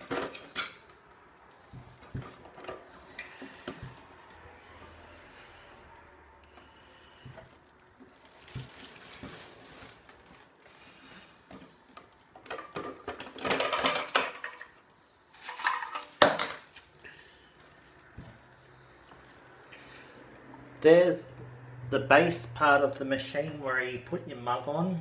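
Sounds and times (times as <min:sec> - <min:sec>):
packaging rustling and clattering: 0:07.2 - 0:19.6.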